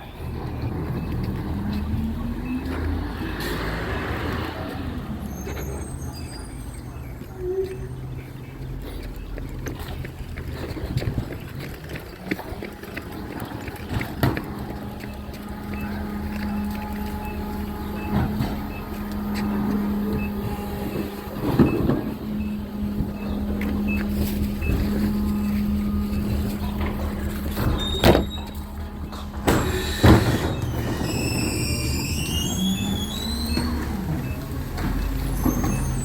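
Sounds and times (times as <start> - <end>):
truck engine hum: 0.0 - 36.0
faint high beeps: 14.6 - 36.0.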